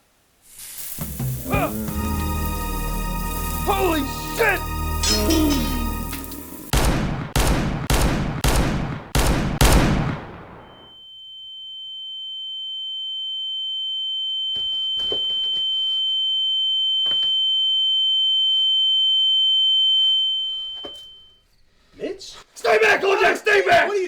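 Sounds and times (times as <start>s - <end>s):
high-pitched ringing tone: 1.0s - 6.7s, 10.6s - 21.6s
gunshots: 6.7s - 10.9s.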